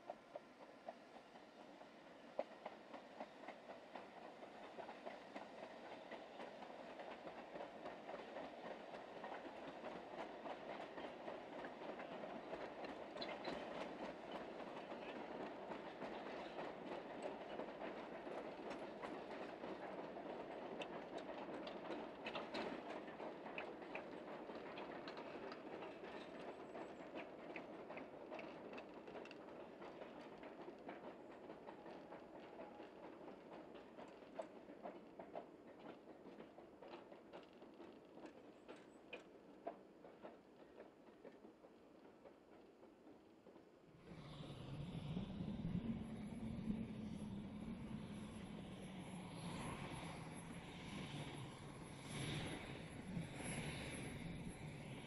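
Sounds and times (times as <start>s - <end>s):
train wheels clicking over rail joints: 2.4s - 55.0s.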